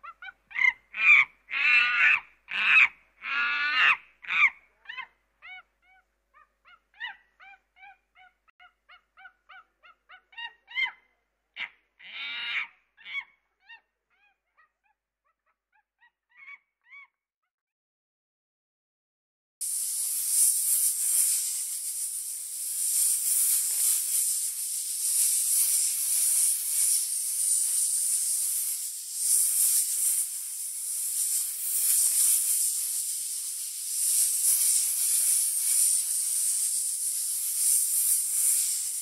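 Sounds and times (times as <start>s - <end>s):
snake hissing: 19.6s - 39.0s.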